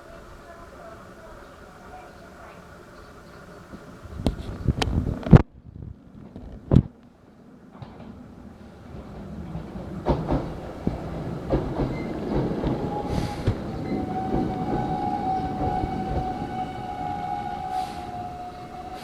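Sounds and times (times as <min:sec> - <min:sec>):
train high whine: 0:07.1 - 0:19.0
train wheels knocking over rail joints: 0:07.8 - 0:19.0
air hiss: 0:12.6 - 0:19.0.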